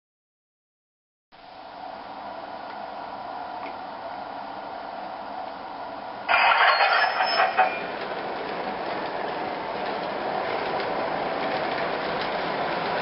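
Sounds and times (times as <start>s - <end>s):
model train clattering on track: 6.3s - 13.0s.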